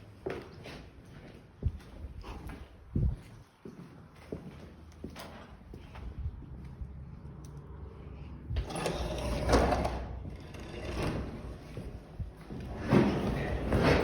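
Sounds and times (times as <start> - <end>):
footsteps going down stairs: 0.0 - 7.1, 11.6 - 14.0.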